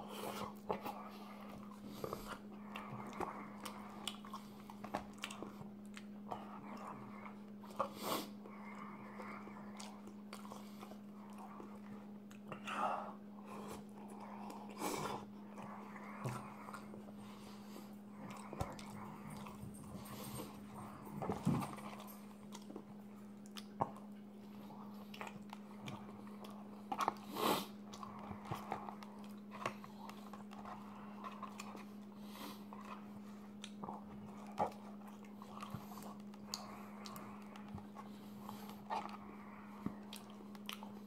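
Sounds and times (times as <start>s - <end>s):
person chewing food: 0.0s - 41.0s
steady low hum: 0.0s - 41.0s.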